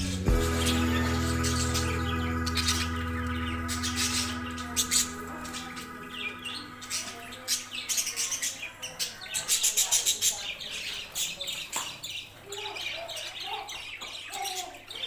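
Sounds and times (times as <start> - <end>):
background music: 0.0 - 8.0
budgerigars chirping: 0.0 - 15.0.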